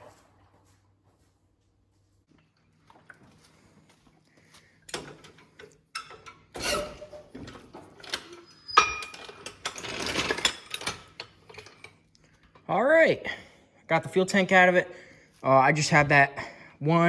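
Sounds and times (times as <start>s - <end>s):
metal tools clanking: 4.9s - 12.0s.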